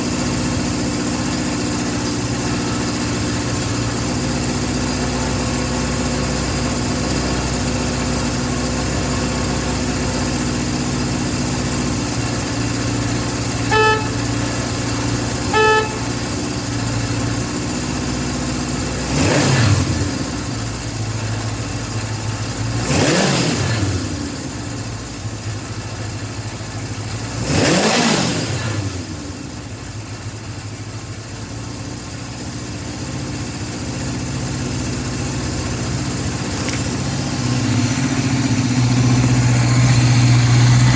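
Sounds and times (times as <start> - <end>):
engine revving: 0.0 - 16.9, 18.8 - 20.9, 22.6 - 24.7, 27.2 - 29.5, 35.7 - 40.9
motorcycle engine idling: 0.0 - 40.9
horn beeps: 13.6 - 16.5.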